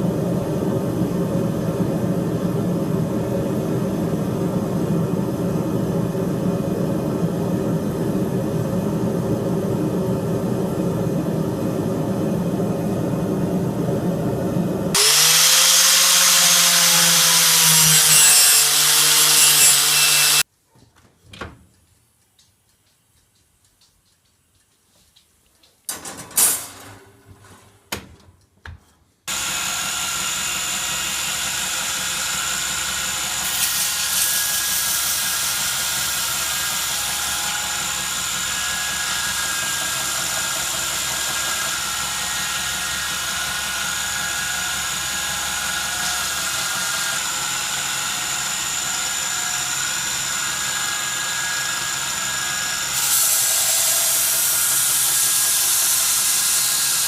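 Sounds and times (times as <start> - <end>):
power tool whining: 14.9 - 20.4, 29.3 - 57.0.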